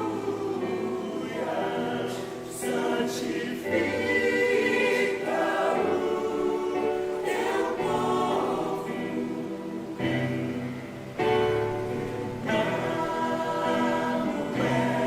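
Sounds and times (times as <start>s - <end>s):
mixed choir singing a hymn: 0.0s - 15.0s.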